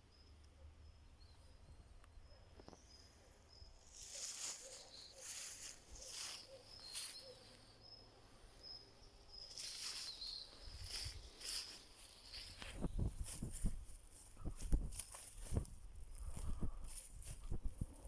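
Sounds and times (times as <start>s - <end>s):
footsteps through dry leaves: 3.9s - 7.5s, 9.5s - 17.5s.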